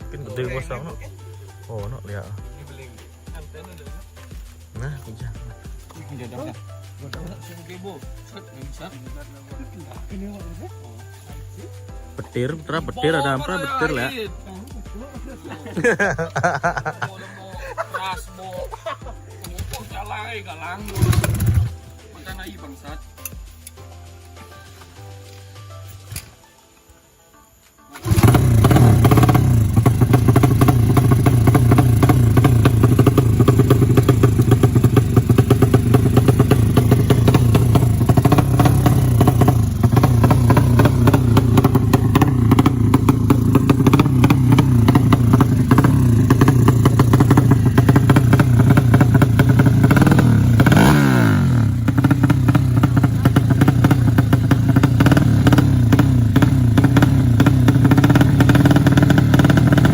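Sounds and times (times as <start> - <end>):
motorcycle engine running: 20.8 - 21.9, 28.0 - 59.9.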